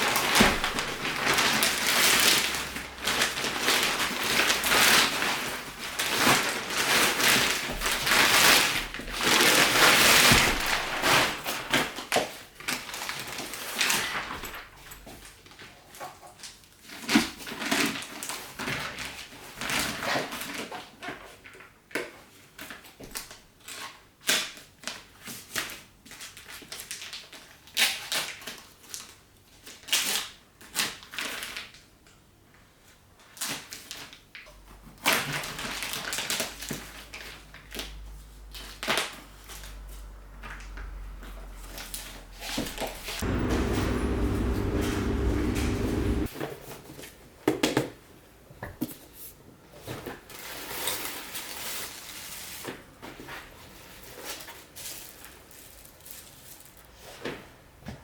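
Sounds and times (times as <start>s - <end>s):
objects rustling and knocking: 0.0s - 11.8s
low steady hum: 43.2s - 46.3s.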